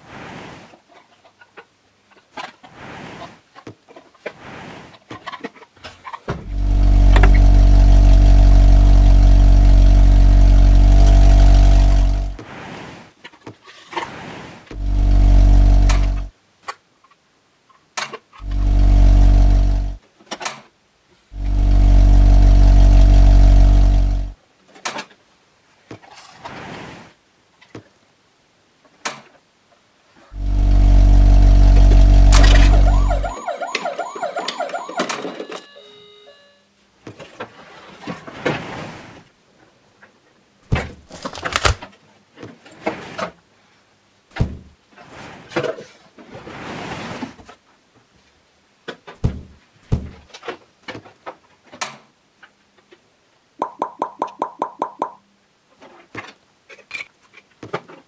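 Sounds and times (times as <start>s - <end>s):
deep vehicle horn blasts: 6.5s - 12.4s, 21.4s - 23.3s
warbling siren-like tone: 6.5s - 12.4s, 14.8s - 16.3s, 18.4s - 20.0s, 21.4s - 24.4s, 30.4s - 36.6s.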